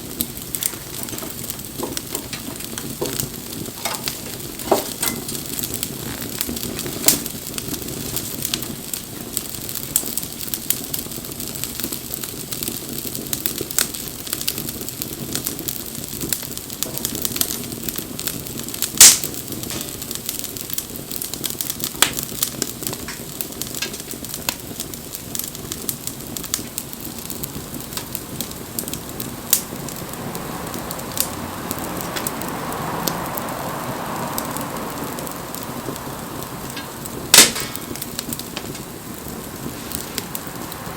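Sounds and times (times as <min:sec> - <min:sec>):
fire crackling and snapping: 0:00.0 - 0:40.9
flame rushing: 0:00.0 - 0:40.9
sharp loud pop: 0:37.3 - 0:38.0.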